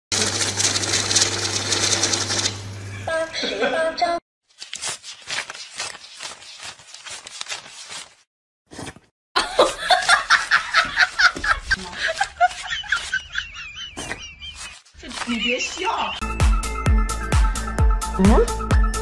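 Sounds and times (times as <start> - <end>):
person laughing: 3.1 - 4.2, 9.4 - 16.2.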